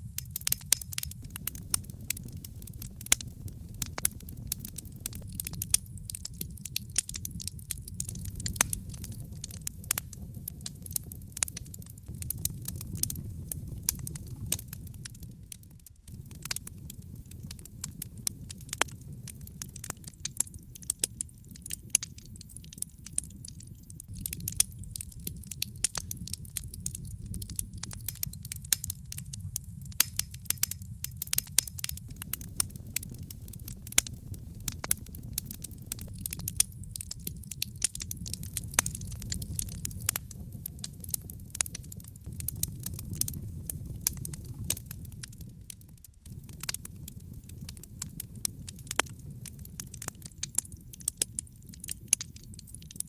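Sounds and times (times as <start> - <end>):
fire crackling and popping: 0.0 - 53.0
fire flames rumbling: 0.0 - 53.0.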